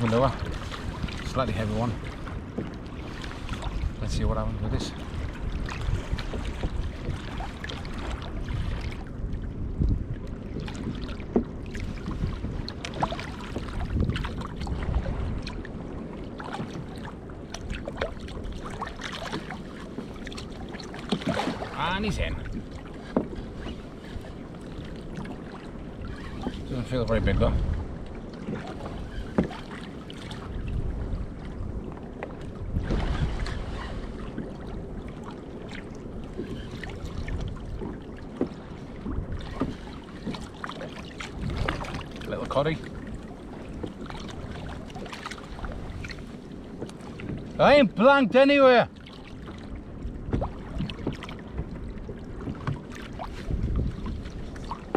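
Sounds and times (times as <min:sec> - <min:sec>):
wind buffeting microphone: 0:00.0 - 0:48.3, 0:49.2 - 0:54.9
water lapping against kayak hull: 0:00.0 - 0:54.9
small splashes and ticks: 0:10.5 - 0:14.8, 0:16.3 - 0:26.8, 0:34.2 - 0:47.5, 0:49.0 - 0:54.9.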